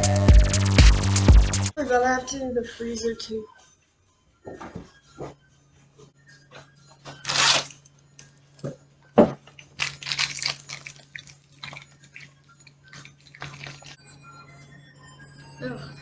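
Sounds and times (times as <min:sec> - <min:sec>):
rustling and scraping: 0:04.4 - 0:07.8.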